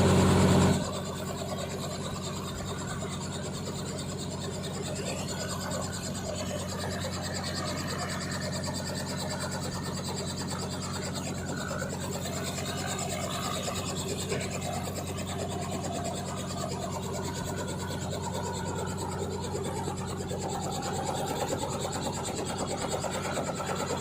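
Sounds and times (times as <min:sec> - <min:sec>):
helicopter engine and rotors: 0:00.0 - 0:24.0.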